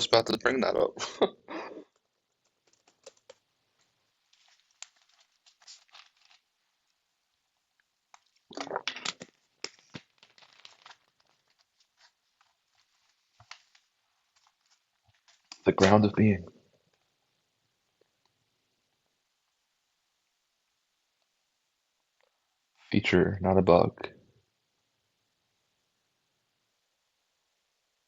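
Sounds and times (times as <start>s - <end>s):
rustling near microphone: 3.8s - 6.6s.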